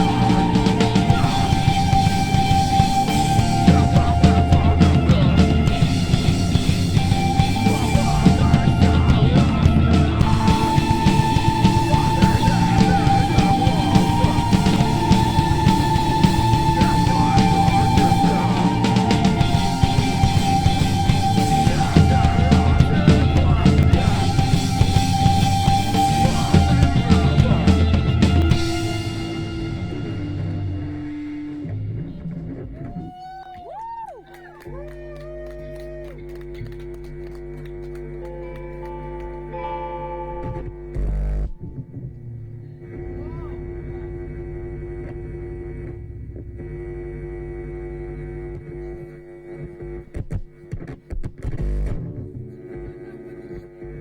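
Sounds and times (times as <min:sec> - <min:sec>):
heavy rock band playing: 0:00.0 - 0:32.1.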